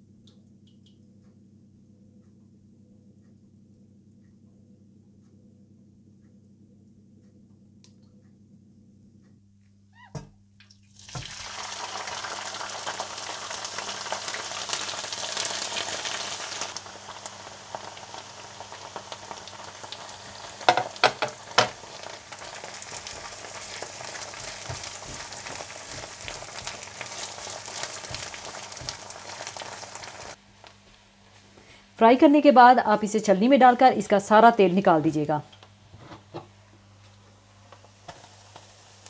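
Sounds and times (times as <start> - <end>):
food sizzling in hot oil: 10.9 - 30.4, 37.8 - 39.0
spatula stirring in wok: 22.4 - 30.4.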